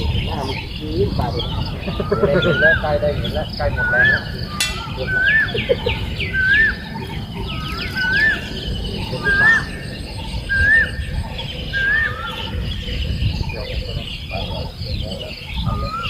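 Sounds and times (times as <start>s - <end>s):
bird whistling rising and falling: 2.1s - 13.6s, 15.5s - 16.0s
downward-sliding bird notes: 4.6s - 5.9s.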